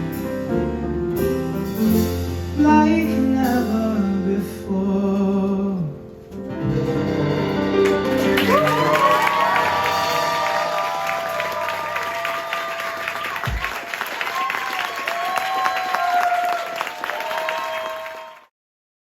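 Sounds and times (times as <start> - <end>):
person singing: 2.6 - 6.1
guitar accompaniment: 6.3 - 11.8
audience cheering and clapping: 7.8 - 18.5.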